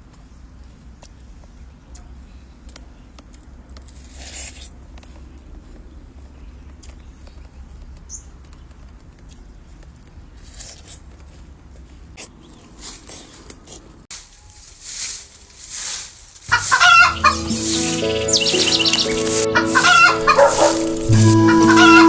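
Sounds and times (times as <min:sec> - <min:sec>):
loud rustling or scraping: 0:12.2 - 0:22.0.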